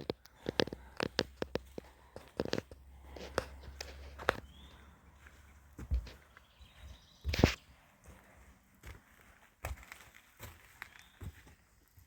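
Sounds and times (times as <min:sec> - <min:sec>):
footsteps on footbridge: 0:00.0 - 0:11.6
faint high chirp: 0:10.8 - 0:11.4.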